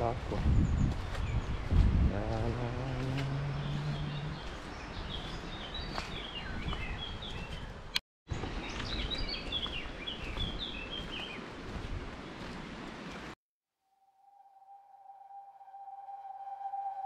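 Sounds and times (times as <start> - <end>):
small birds chirping: 0.4 - 13.2.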